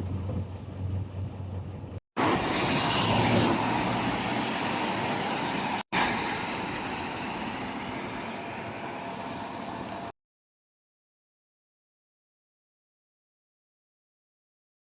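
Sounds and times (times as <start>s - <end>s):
truck driving in heavy rain: 0.0s - 10.2s.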